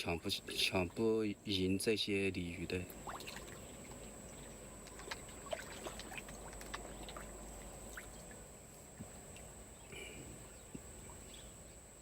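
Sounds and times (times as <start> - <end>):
fish splashing and sucking water: 2.9 - 8.5.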